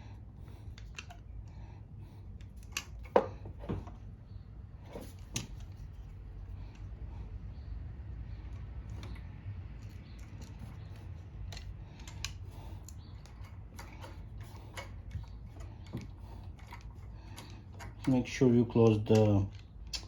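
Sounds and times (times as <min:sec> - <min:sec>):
steady low hum: 0:00.0 - 0:20.0
hand tools clicking and tapping: 0:02.4 - 0:04.0, 0:08.9 - 0:20.0.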